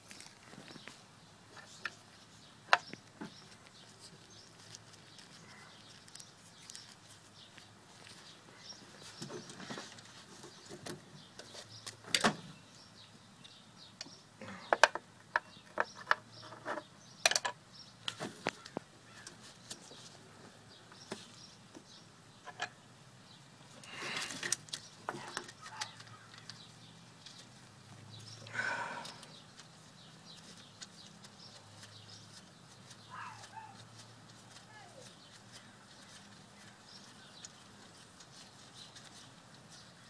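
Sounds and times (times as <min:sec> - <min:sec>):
rustling handling noise: 0:00.0 - 0:12.1, 0:23.7 - 0:40.0.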